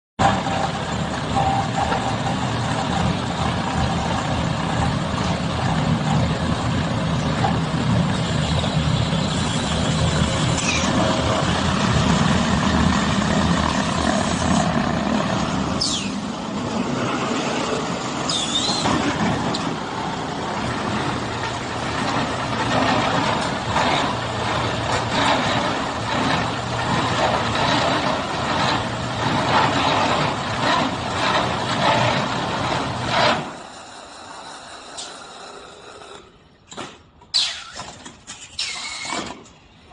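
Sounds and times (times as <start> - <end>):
baler machine clatter and hum: 0.2 - 35.4
high squeaks: 9.4 - 11.0, 15.8 - 16.2, 18.2 - 19.6, 37.3 - 39.4.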